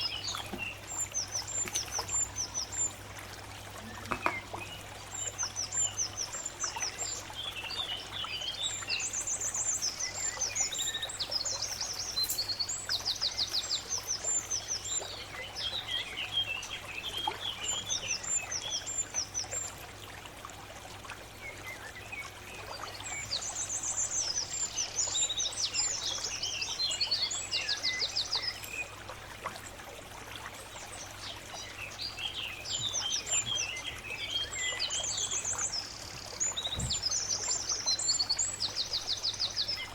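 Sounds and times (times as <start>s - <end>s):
birds chirping and singing: 7.8s - 16.7s, 31.9s - 39.9s.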